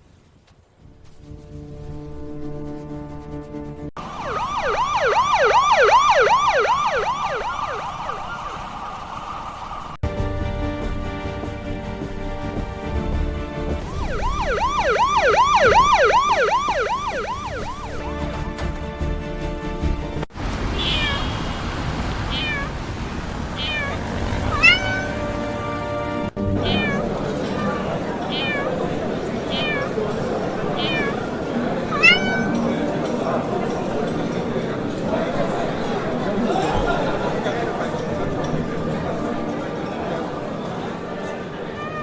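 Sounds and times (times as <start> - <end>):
emergency siren yelping: 4.0 - 10.0, 13.8 - 18.3, 24.5 - 25.2, 32.0 - 32.6
cat meowing: 20.8 - 21.3, 22.3 - 22.8, 23.6 - 25.2, 26.6 - 28.8, 29.5 - 30.0, 30.8 - 31.3, 31.9 - 32.6, 41.7 - 42.0.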